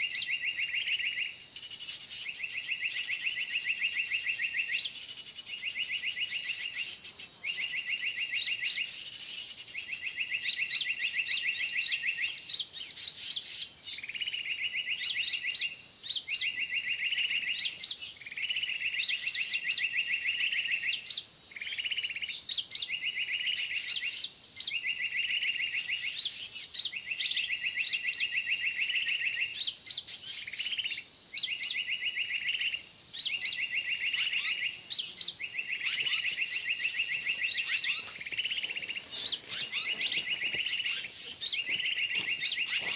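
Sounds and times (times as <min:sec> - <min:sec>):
high bird chirps: 0:29.0 - 0:42.9.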